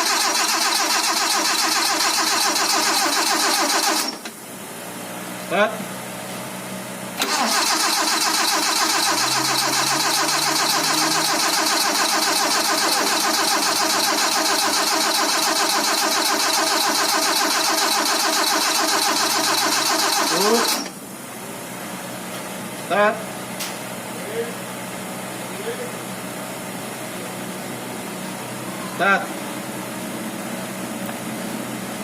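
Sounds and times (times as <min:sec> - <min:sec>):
starter motor cranking engine: 0:00.0 - 0:04.4, 0:07.2 - 0:21.0.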